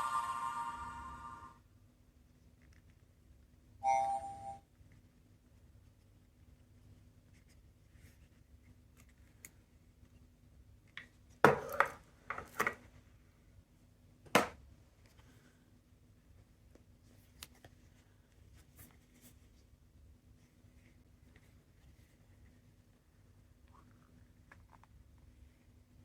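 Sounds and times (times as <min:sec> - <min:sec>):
short electronic tone: 0:00.0 - 0:01.6, 0:03.8 - 0:04.6.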